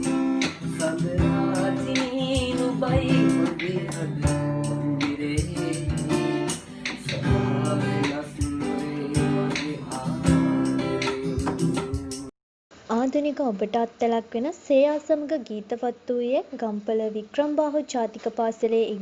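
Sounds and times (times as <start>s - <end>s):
acoustic guitar strumming: 0.0s - 12.3s
young man singing: 0.0s - 12.3s.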